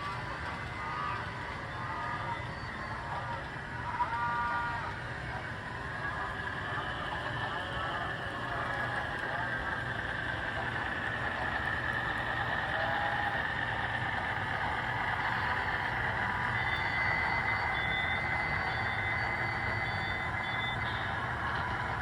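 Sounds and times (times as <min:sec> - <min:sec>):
diesel engine sound effect: 0:00.0 - 0:22.0
model train motor and wheels: 0:00.0 - 0:22.0
steady high tone: 0:04.4 - 0:22.0.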